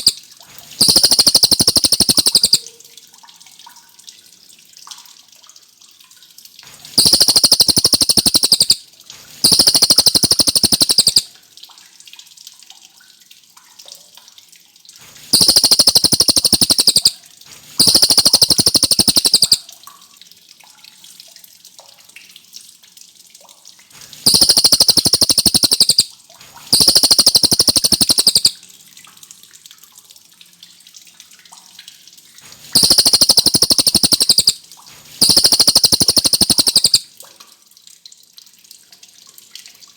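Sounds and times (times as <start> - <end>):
bird singing rolling trills: 0.8 - 2.6, 7.0 - 8.8, 9.4 - 11.2, 15.4 - 17.1, 17.8 - 19.6, 24.3 - 26.1, 26.8 - 28.6, 32.8 - 34.6, 35.2 - 37.0.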